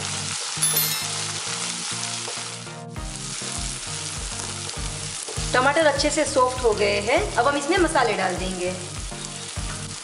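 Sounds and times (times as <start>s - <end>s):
vegetables sizzling in hot oil: 0.0s - 10.0s
background music with steady beat: 2.7s - 10.0s.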